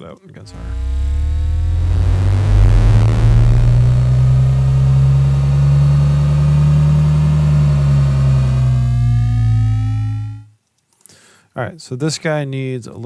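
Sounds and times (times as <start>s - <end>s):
thin tones gliding upward: 0.5s - 10.4s
bass-heavy engine-like drone: 0.5s - 10.5s.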